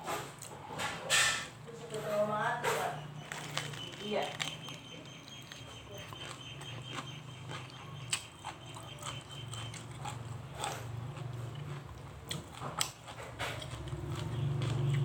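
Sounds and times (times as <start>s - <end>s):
chewing with wet mouth clicks: 3.1s - 15.0s.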